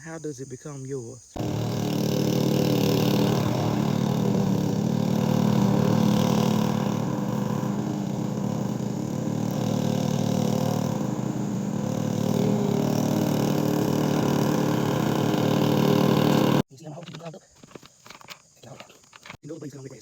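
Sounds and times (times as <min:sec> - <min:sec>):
lawn mower cutting grass: 0:01.4 - 0:16.6.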